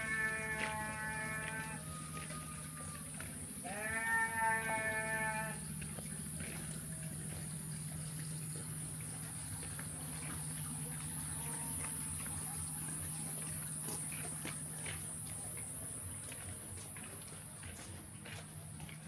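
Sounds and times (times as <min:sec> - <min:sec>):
livestock bleat: 0:00.0 - 0:01.9, 0:03.6 - 0:05.6
low hum: 0:00.0 - 0:19.0.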